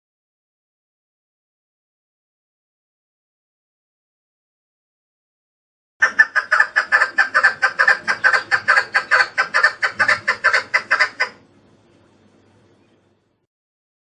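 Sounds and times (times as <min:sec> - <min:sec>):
partridge calling: 0:06.0 - 0:11.4.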